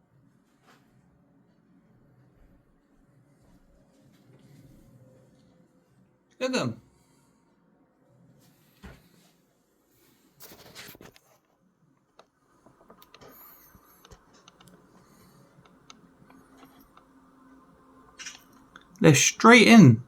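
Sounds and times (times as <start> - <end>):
faint clicks: 14.0 - 17.1.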